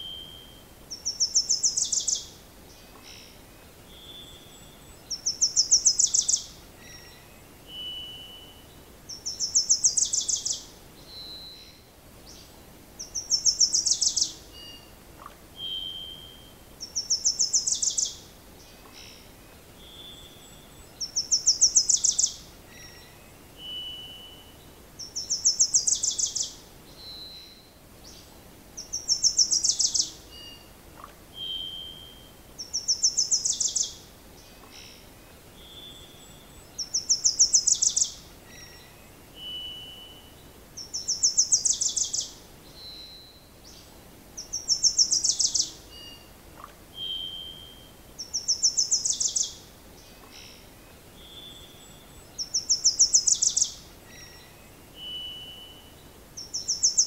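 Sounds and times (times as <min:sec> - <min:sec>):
songbird high trill: 0:35.6 - 0:43.4, 0:44.4 - 0:49.6, 0:51.2 - 0:57.0.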